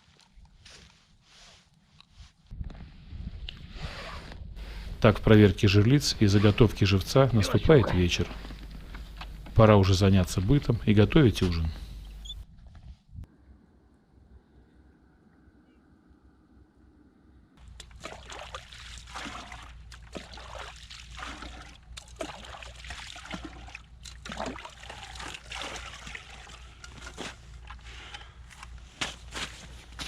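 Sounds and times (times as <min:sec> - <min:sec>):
water sloshing and trickling: 0:00.0 - 0:01.2, 0:17.6 - 0:30.0
low hum: 0:04.4 - 0:18.1
clatter of things handled: 0:26.6 - 0:30.0.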